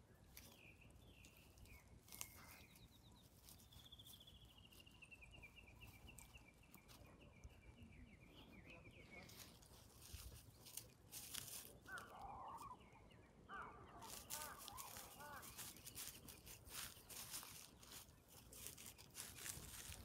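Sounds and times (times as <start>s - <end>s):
dog paws in dry leaves: 0.2s - 7.1s, 9.2s - 12.6s, 14.0s - 20.0s
short high bird calls: 11.3s - 18.1s
bird trilling: 11.8s - 17.7s.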